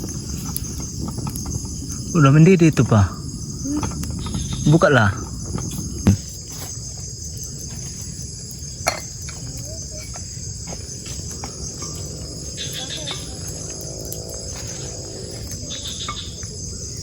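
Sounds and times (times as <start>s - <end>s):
low rumbling noise: 0.0s - 6.3s
night insects chirring: 0.0s - 17.0s
sharp knocks: 6.0s - 6.2s.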